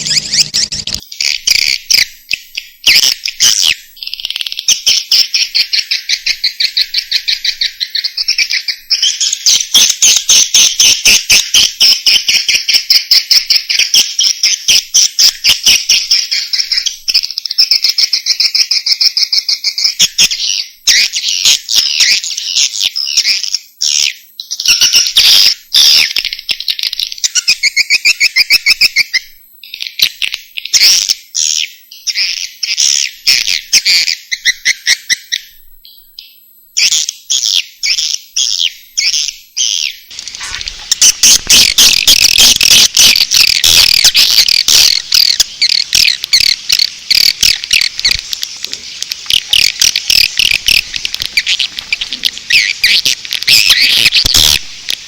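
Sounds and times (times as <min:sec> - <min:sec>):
swiftlet chattering trills: 0:00.0 - 0:01.1, 0:40.1 - 0:54.6.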